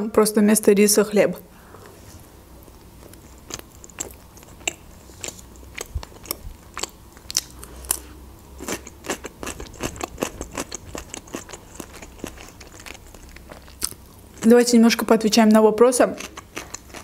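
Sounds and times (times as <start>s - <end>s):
chewing sandwich wet crunches: 2.9s - 14.5s, 16.2s - 17.0s.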